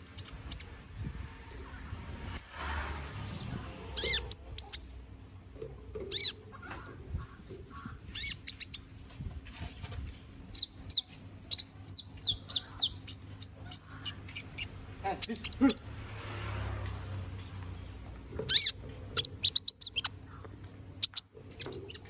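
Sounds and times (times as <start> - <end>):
bird singing high chirps: 0.0 - 1.8, 4.0 - 6.4, 7.5 - 8.8, 10.5 - 15.8, 18.5 - 20.2.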